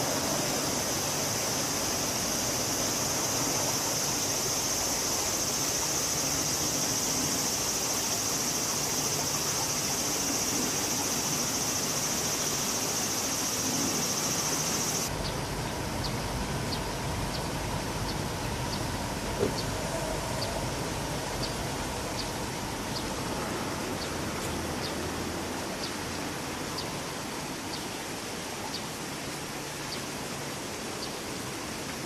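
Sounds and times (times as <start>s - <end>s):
high-pitched insect drone: 0.0s - 15.4s
noisy hiss: 0.0s - 32.0s.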